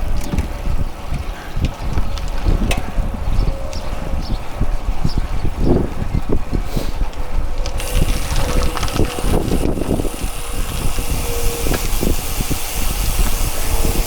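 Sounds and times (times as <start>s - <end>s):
road noise rumble: 0.0s - 14.0s
wind buffeting: 0.0s - 14.0s.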